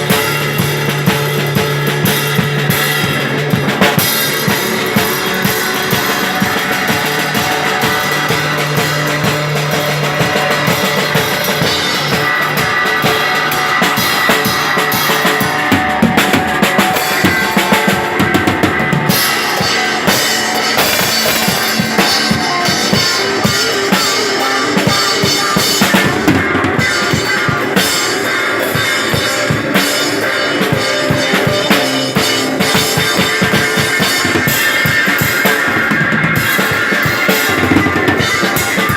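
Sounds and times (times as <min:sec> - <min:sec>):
rock band playing live: 0:00.0 - 0:38.9
bass drum and snare hits: 0:20.1 - 0:22.2.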